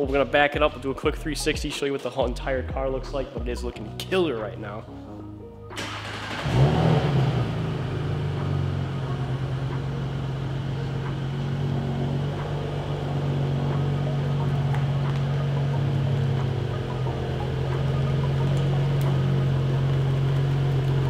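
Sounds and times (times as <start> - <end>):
car exhaust idling: 5.9 - 21.0.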